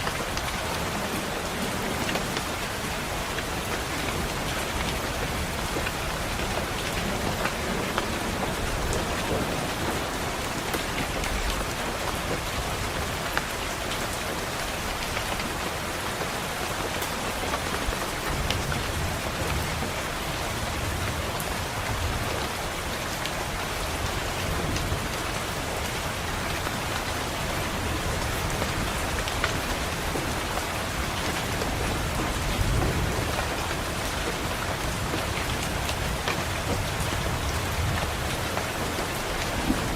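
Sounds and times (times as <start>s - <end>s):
heavy rain pattering on a window: 0.0s - 39.9s
low thunder rumbles: 27.4s - 39.9s.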